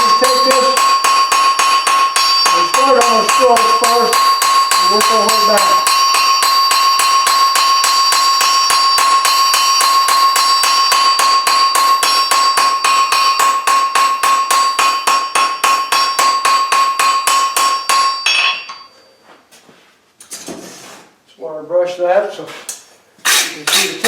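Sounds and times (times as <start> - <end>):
hammer striking steel bar: 0.0 - 19.0
anvil ringing: 0.0 - 19.2.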